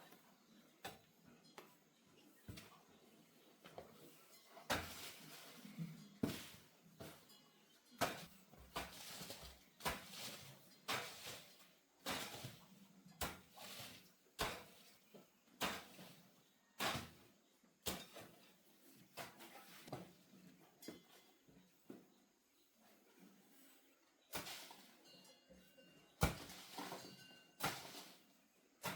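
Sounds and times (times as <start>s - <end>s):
hoe striking and scraping earth: 4.3s - 15.0s, 15.6s - 16.2s, 16.8s - 20.1s, 24.3s - 28.9s.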